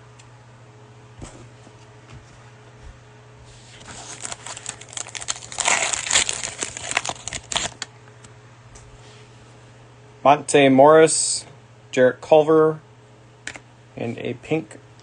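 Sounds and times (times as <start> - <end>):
cellophane wrapper tearing and crinkling: 3.8 - 7.9.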